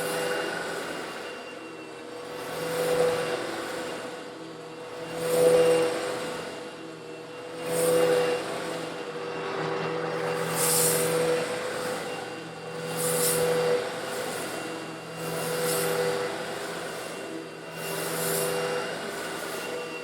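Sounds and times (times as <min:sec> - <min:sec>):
vacuum cleaner motor hum: 0:00.0 - 0:20.0.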